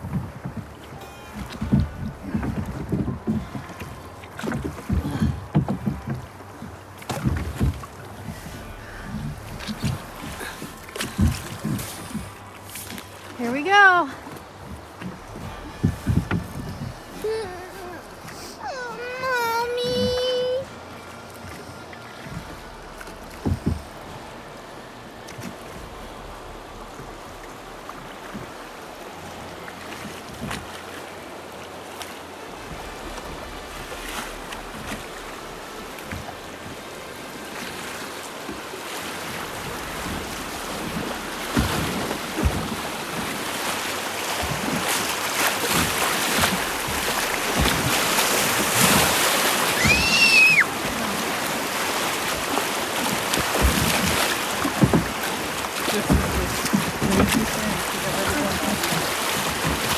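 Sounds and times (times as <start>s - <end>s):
knocks on boat: 0.0s - 18.4s, 19.2s - 31.1s, 32.1s - 59.9s
river water rushing around boat: 0.0s - 59.9s
brief high squeal: 49.8s - 50.7s.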